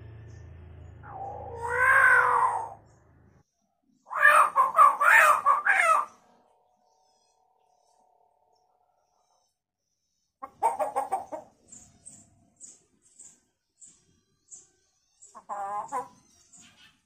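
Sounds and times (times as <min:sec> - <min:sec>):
bird calling in chicken-like mimicry: 0:01.0 - 0:03.0, 0:04.0 - 0:08.0, 0:10.4 - 0:13.3, 0:14.5 - 0:17.0.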